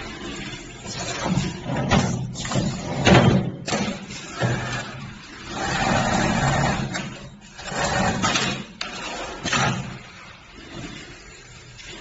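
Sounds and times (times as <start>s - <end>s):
sewing machine running: 4.4s - 9.6s.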